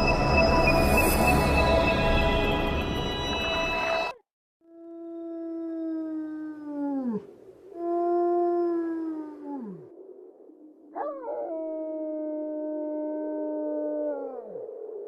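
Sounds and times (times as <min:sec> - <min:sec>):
dog-like howl: 0:11.0 - 0:15.0.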